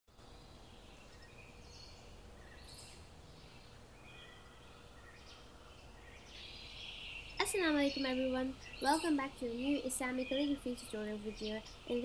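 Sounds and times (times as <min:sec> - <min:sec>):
low steady hum: 0:00.1 - 0:12.0
faint bird chirps: 0:00.2 - 0:12.0.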